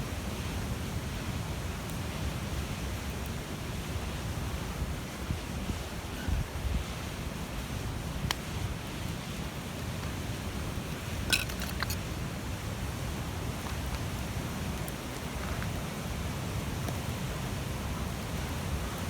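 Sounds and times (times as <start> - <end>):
bonfire burning: 7.0 - 19.0.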